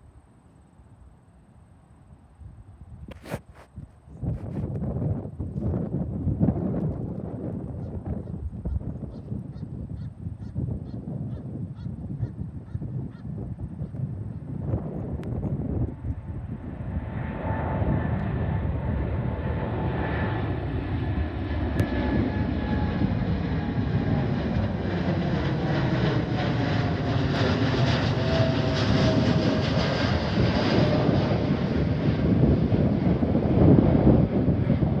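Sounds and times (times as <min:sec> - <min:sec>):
jet engine roar: 0:11.8 - 0:35.0.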